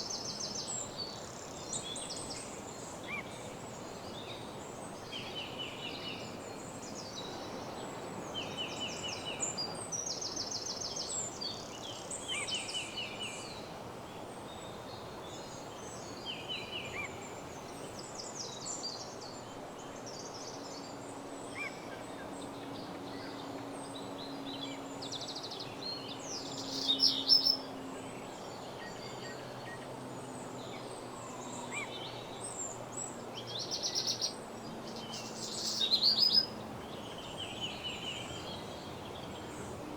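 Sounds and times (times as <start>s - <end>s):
background hiss: 30.3s - 39.9s
songbirds trilling: 31.5s - 39.9s.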